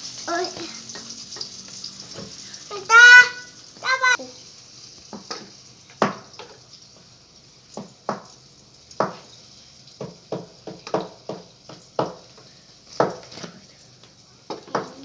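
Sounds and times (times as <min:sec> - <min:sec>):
egg sizzling in oil: 0:00.0 - 0:13.2.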